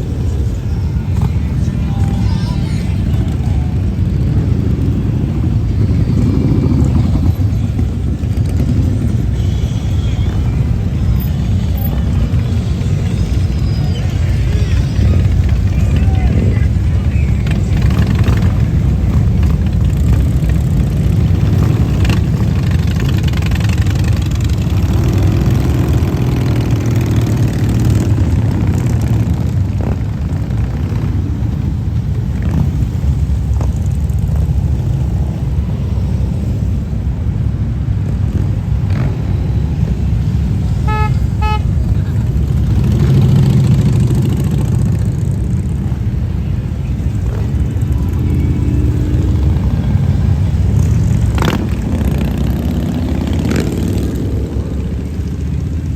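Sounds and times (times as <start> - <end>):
motorcycles passing: 0.0 - 55.9
vehicle horn toots: 40.8 - 42.0.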